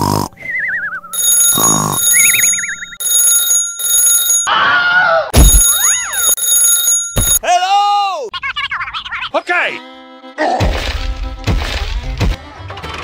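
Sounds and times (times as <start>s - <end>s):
rising and falling chirps: 0.4s - 3.1s
alarm clock ringing: 1.2s - 4.5s, 5.4s - 7.4s
low thud: 5.4s - 5.7s.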